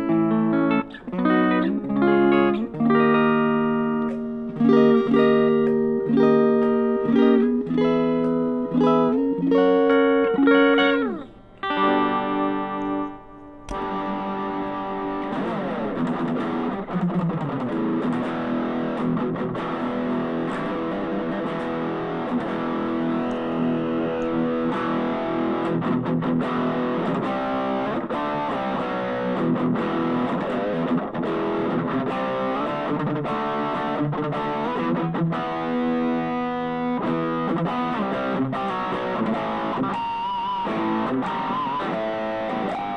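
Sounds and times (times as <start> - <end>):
clean electric guitar notes: 0.0 - 42.9
distorted electric guitar: 0.0 - 42.9.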